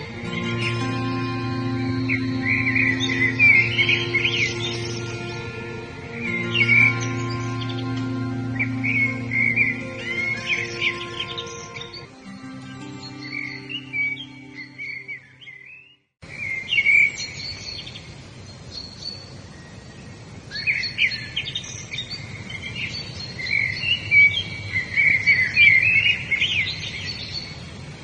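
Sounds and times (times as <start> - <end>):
background hiss: 0.0 - 15.5
birds chirping and singing: 0.0 - 19.8, 20.5 - 27.7.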